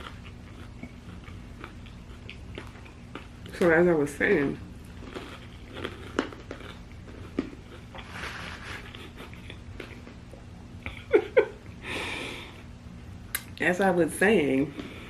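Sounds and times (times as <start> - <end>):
person chewing food: 0.0 - 3.7, 4.6 - 11.4.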